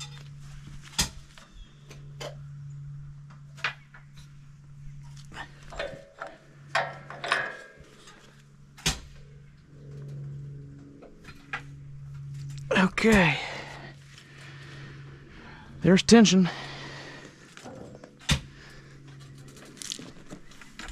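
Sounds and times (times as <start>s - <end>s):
steady low hum: 0.0s - 20.9s
metal tools clanking: 5.1s - 8.4s.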